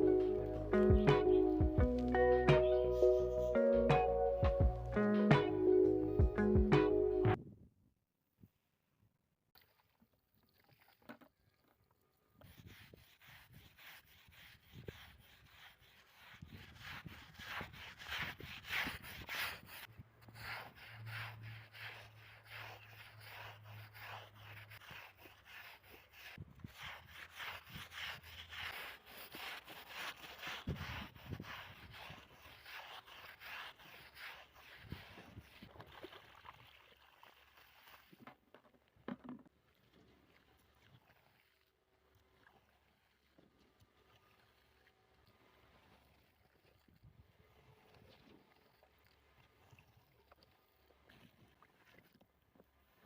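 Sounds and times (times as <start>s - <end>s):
scrubbing strokes on a surface: 12.4s - 38.3s, 40.0s - 53.0s.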